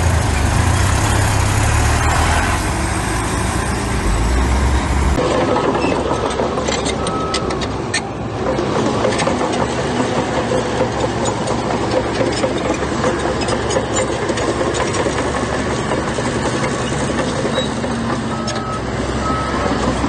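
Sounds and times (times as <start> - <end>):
diesel machinery engine hum: 0.0 - 20.0
machinery clatter: 4.8 - 20.0.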